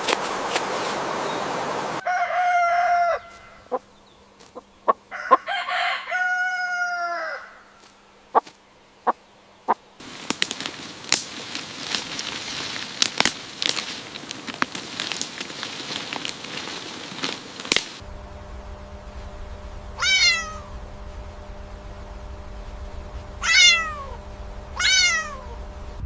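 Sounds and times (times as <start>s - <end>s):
rustling crackling noise: 0.0s - 1.3s, 10.0s - 26.0s
rooster crowing: 2.0s - 3.8s, 5.0s - 7.8s, 19.8s - 20.9s, 23.2s - 25.7s.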